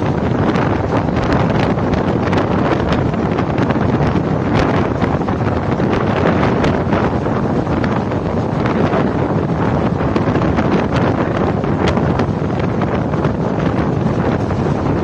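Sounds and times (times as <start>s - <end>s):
moving train noise: 0.0s - 15.0s
wind buffeting microphone: 0.0s - 15.0s.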